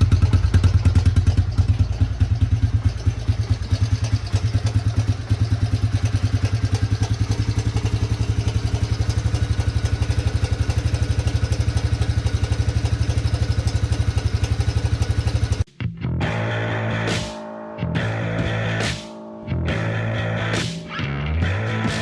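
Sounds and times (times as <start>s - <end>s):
engine idling: 0.0s - 15.7s.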